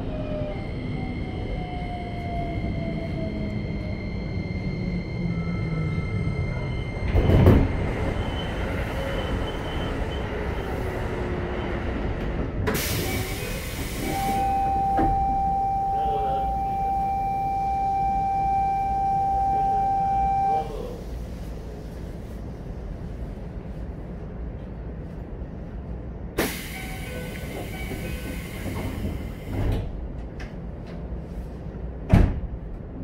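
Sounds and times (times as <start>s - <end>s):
train running noise: 0.0s - 15.5s, 20.6s - 33.0s
steady high squeal: 0.2s - 10.8s.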